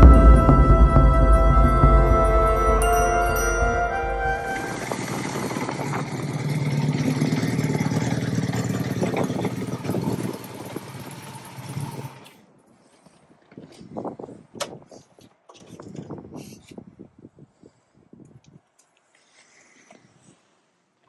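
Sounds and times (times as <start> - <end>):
motorcycle engine idling: 4.6 - 12.2.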